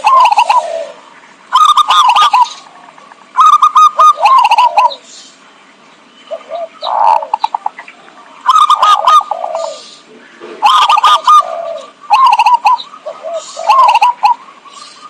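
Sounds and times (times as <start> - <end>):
dove rippling coos: 0.0 - 5.4, 6.3 - 15.0.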